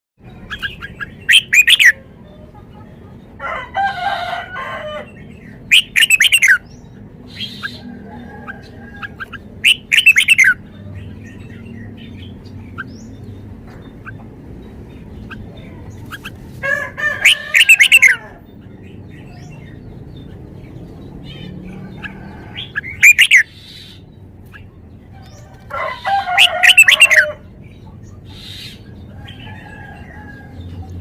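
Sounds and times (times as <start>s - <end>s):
bird warbling song: 0.2s - 3.2s, 5.0s - 16.5s, 17.1s - 31.0s
low bird call: 16.1s - 18.5s, 21.3s - 24.0s, 25.8s - 27.4s.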